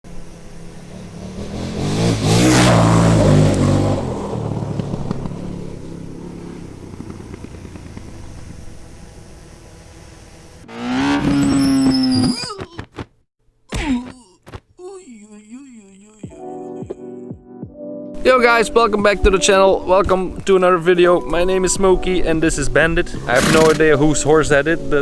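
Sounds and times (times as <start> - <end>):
motorcycle passing: 0.1 - 12.4, 21.6 - 24.9
engine revving and cutting off: 0.2 - 12.4, 23.1 - 24.0.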